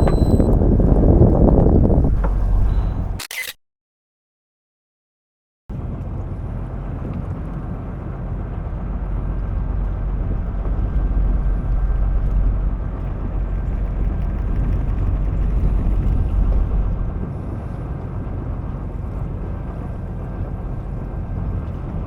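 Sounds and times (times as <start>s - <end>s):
boat engine running: 0.0s - 3.2s, 5.7s - 22.0s
wind on microphone: 0.0s - 3.2s, 8.7s - 22.0s.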